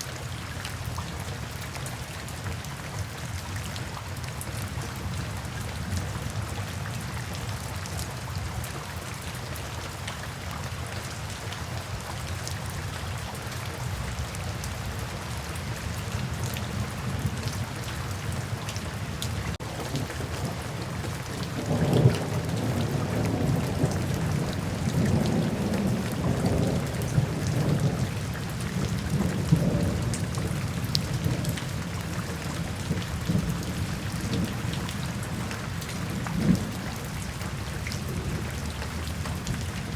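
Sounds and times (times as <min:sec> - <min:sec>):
steady rainfall: 0:00.0 - 0:39.9
thunder rumbling: 0:19.6 - 0:39.7.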